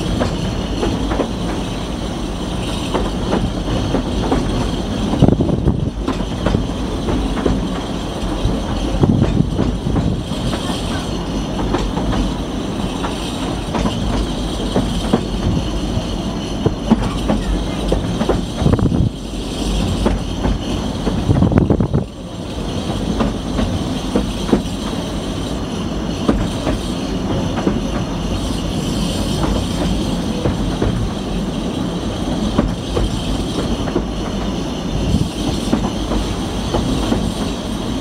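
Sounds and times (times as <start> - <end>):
train running gear rumble: 0.0 - 38.0
wheels clicking over rail joints: 2.6 - 25.0.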